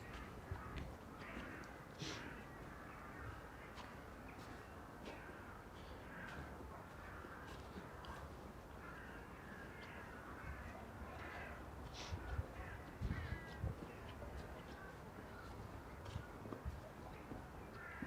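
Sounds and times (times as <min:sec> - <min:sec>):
crows cawing: 0:00.0 - 0:16.2, 0:17.2 - 0:18.0.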